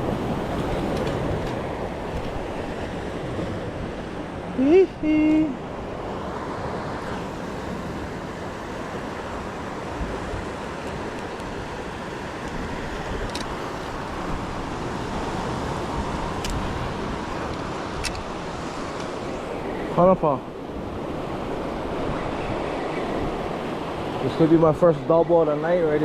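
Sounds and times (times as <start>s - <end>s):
wind on microphone: 0.0s - 24.4s
surf washing on shore: 0.0s - 26.0s.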